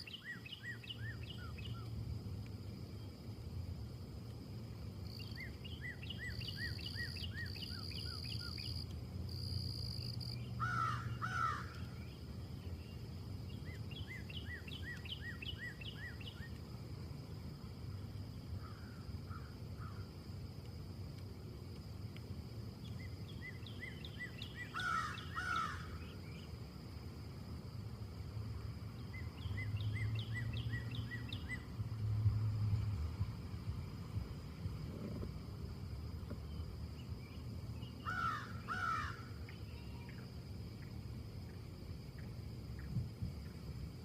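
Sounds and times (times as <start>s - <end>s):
wind in trees: 0.0s - 44.0s
small bird chirping: 5.1s - 8.9s, 11.7s - 16.6s, 29.0s - 32.0s.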